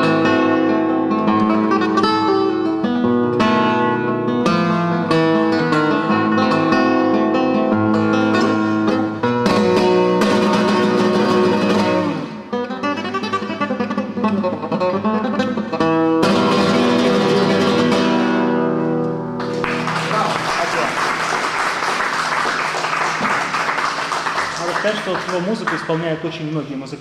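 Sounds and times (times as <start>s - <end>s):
acoustic guitar strummed chords: 0.0s - 19.9s
applause: 19.4s - 26.2s.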